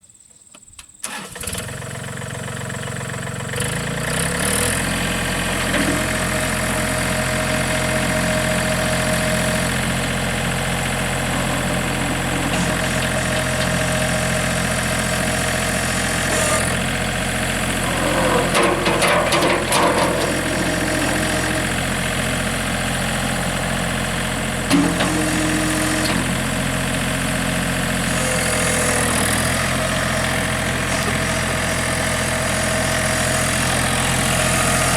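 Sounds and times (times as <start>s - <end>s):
tractor diesel engine starting: 1.0s - 34.9s
tractor engine idling: 1.1s - 34.9s
clattering rattle: 17.9s - 21.6s.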